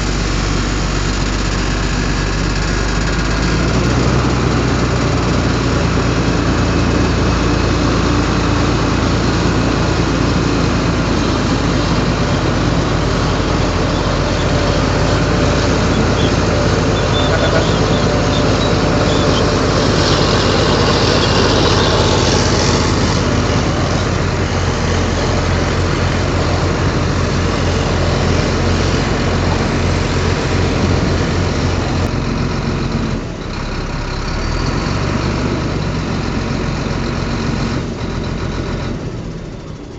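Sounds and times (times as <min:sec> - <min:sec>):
heavy diesel engine running: 0:00.0 - 0:39.9
hissing rise: 0:10.6 - 0:32.1.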